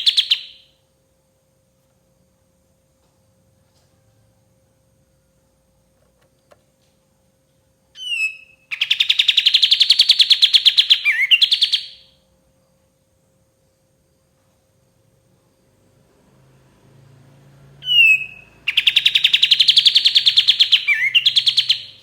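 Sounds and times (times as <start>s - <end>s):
bird singing rattling trill: 0.0s - 0.8s, 8.0s - 12.2s, 17.8s - 22.0s
faint steady hum: 0.0s - 22.0s.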